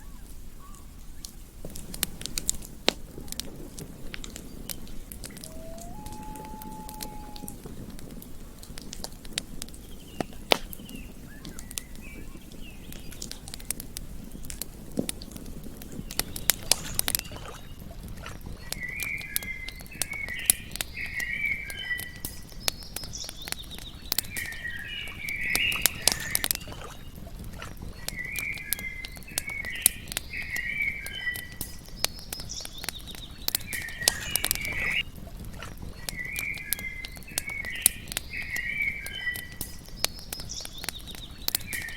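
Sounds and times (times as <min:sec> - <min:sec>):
campfire crackling and popping: 0:00.0 - 0:41.9
chirping calls: 0:04.4 - 0:07.8, 0:32.4 - 0:35.0.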